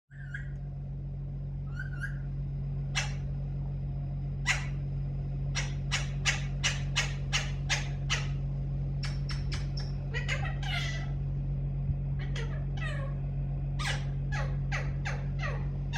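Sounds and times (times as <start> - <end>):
parrot squawking: 0.1 - 0.6, 1.7 - 2.3, 2.9 - 3.3, 4.4 - 4.8, 5.5 - 8.4, 9.0 - 11.2, 12.2 - 13.2, 13.8 - 15.9
steady low hum: 0.1 - 15.9.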